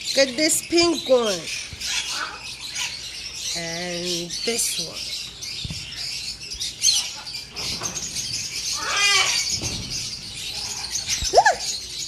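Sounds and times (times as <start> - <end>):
parrots chattering and chirping: 0.0 - 12.0
drawn-out parrot call: 6.7 - 11.9.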